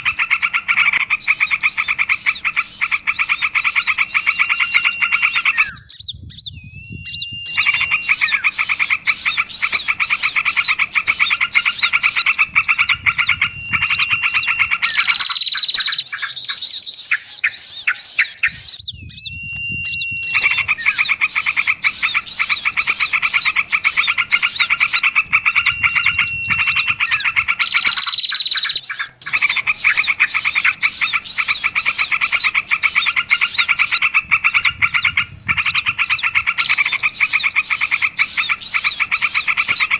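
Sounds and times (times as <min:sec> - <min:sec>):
songbirds chirping and trilling: 0:00.0 - 0:39.9
fast pulsing chatter: 0:07.1 - 0:15.4, 0:18.4 - 0:28.1.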